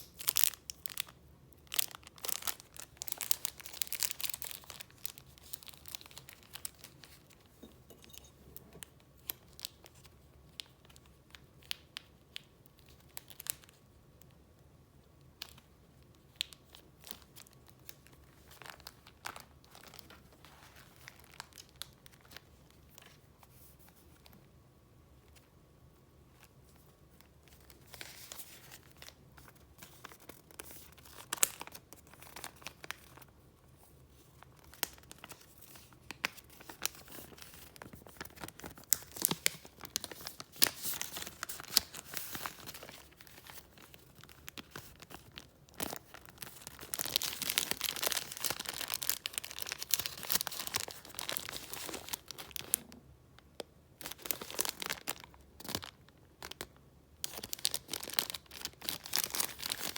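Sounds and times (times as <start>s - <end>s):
paper rustling and crinkling: 18.4s - 24.4s, 34.1s - 52.9s.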